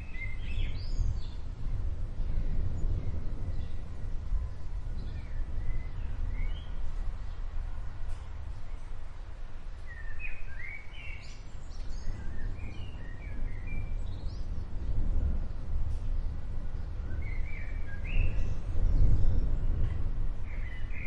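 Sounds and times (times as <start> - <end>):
small birds chirping: 0.0 - 1.6, 4.5 - 7.6, 9.8 - 21.0
distant thunder rumbling: 12.1 - 21.0.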